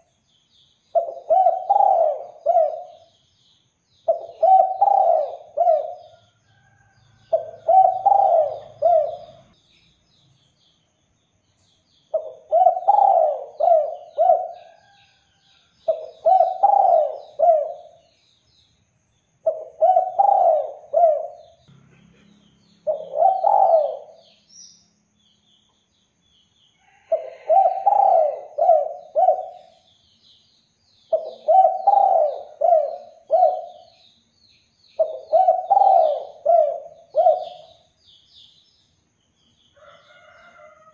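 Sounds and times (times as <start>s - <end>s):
small birds chirping: 0.0s - 40.9s
dove cooing: 1.0s - 3.1s, 4.1s - 6.1s, 7.3s - 9.5s, 12.1s - 15.0s, 15.9s - 18.0s, 19.4s - 21.6s, 22.8s - 24.2s, 27.1s - 29.8s, 31.1s - 33.9s, 35.0s - 37.8s.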